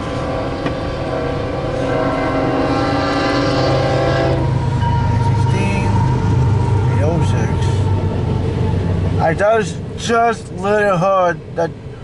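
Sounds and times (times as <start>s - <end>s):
locomotive air horn: 0.0s - 8.1s
low rumble: 0.0s - 12.0s.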